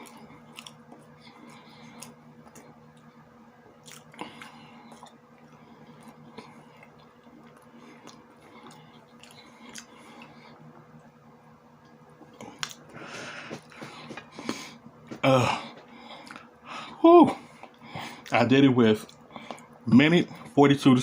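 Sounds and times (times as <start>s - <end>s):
wet chewing mouth smacks: 0.0s - 3.1s, 3.8s - 5.2s, 5.9s - 10.3s, 12.2s - 15.2s.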